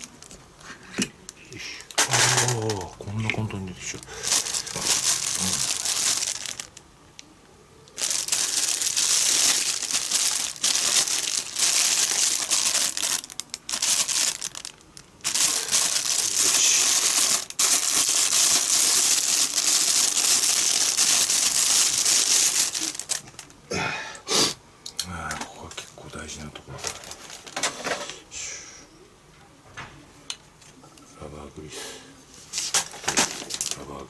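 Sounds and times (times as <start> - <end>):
wrapping crinkling and rustling: 0.0 - 6.9, 7.9 - 23.6, 25.3 - 28.0, 32.3 - 34.0.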